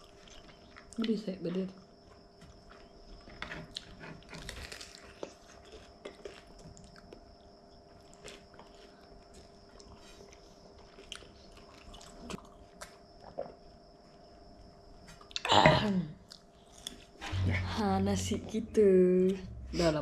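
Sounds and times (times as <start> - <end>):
crunching while chewing: 0.0 - 1.1, 2.0 - 14.2, 16.2 - 17.2
faint steady hum: 0.0 - 20.0.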